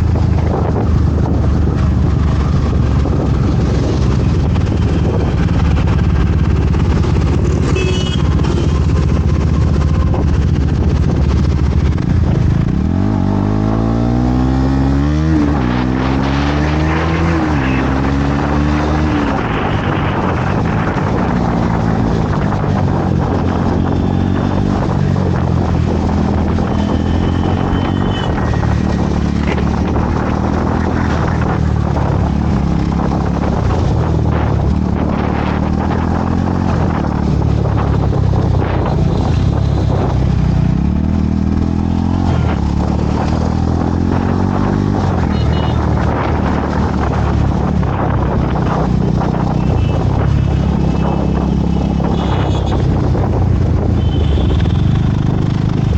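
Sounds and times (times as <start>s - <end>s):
motorcycle engine running: 0.0s - 15.8s, 17.6s - 55.9s
wind and road noise: 0.0s - 55.9s.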